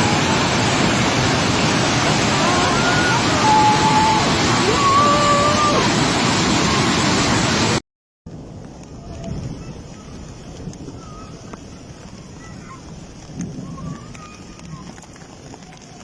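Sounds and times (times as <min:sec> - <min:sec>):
floodwater rushing: 0:00.0 - 0:07.8.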